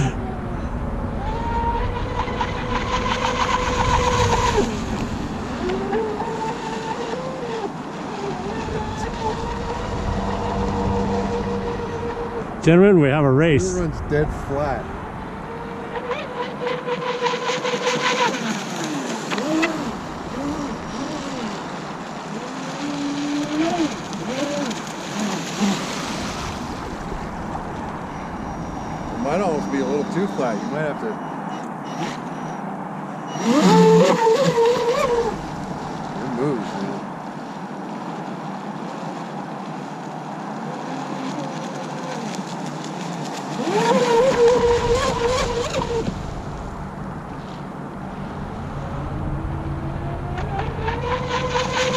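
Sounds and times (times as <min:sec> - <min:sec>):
model boat motor whining: 0:01.1 - 0:12.9, 0:15.4 - 0:37.0, 0:43.5 - 0:47.0, 0:48.4 - 0:51.9.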